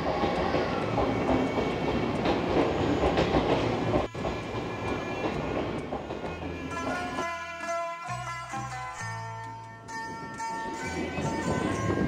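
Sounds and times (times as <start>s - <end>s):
train wheels clattering on rails: 0.0s - 7.4s.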